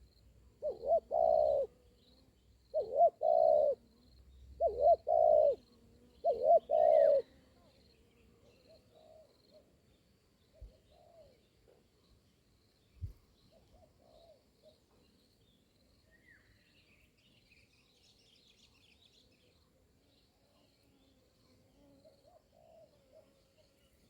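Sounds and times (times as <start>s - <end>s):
doves cooing: 0.6s - 1.8s, 2.7s - 3.8s, 4.6s - 7.3s.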